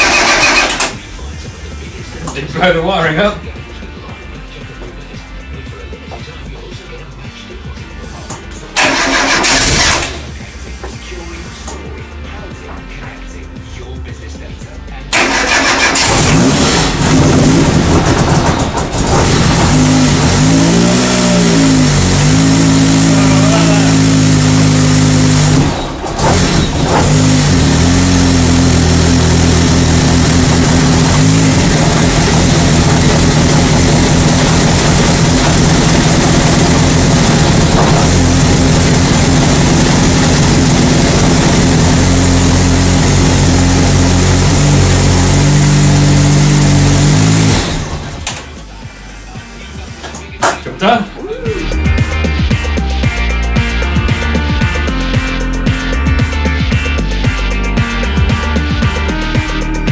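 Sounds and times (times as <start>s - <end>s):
race car engine revving: 0.0s - 3.6s, 8.2s - 11.8s, 15.0s - 50.6s.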